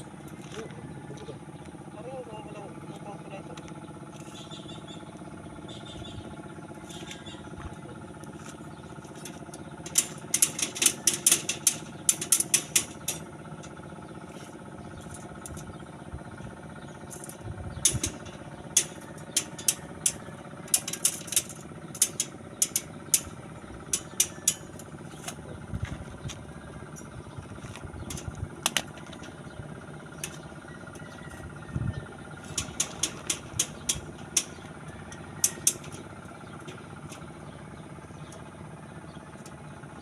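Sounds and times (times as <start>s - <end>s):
engine-like hum: 0.0s - 40.0s
construction taps and knocks: 9.2s - 13.4s, 17.1s - 26.4s, 32.4s - 37.2s.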